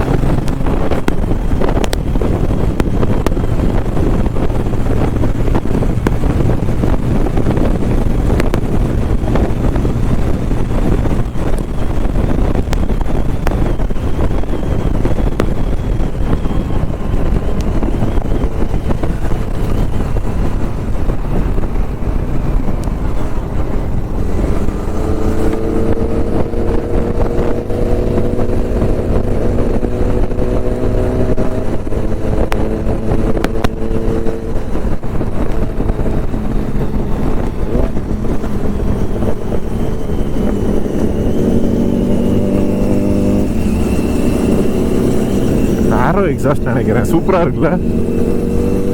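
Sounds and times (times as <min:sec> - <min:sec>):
motorcycle engine climbing in pitch: 0:00.0 - 0:48.9
wind and road noise: 0:00.0 - 0:48.9.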